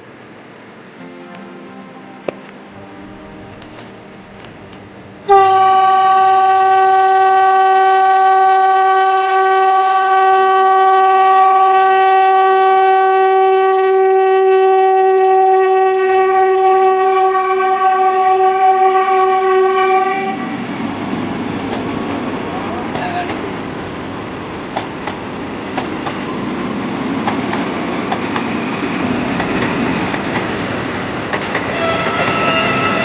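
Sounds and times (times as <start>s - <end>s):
train horn long note: 1.0s - 20.6s, 31.6s - 33.0s.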